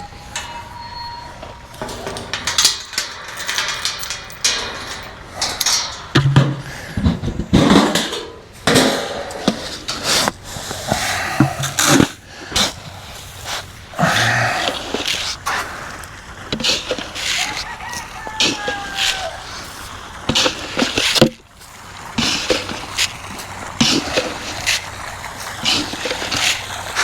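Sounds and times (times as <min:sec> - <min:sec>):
footsteps: 0:09.4 - 0:27.0
hay rustling and crackling: 0:09.7 - 0:27.0.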